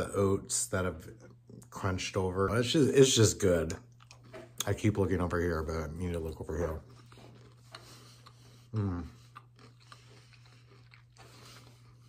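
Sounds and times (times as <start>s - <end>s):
person chewing: 3.8s - 4.7s, 6.2s - 12.0s
person humming mm: 8.7s - 9.2s.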